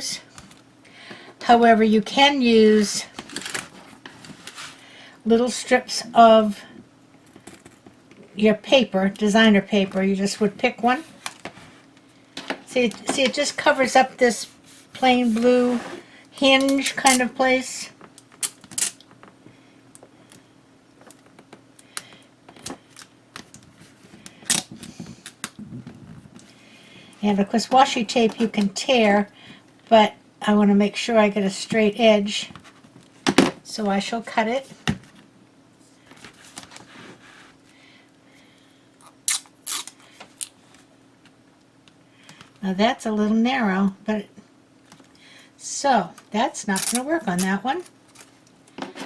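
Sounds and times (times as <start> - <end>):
tape handling rustle: 16.4 - 17.3, 18.2 - 19.0, 39.0 - 40.9, 46.7 - 48.8.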